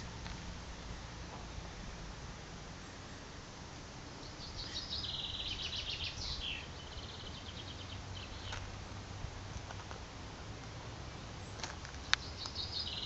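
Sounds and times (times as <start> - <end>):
outdoor background noise: 0.0 - 13.0
songbird trilling: 4.2 - 8.6, 12.0 - 13.0.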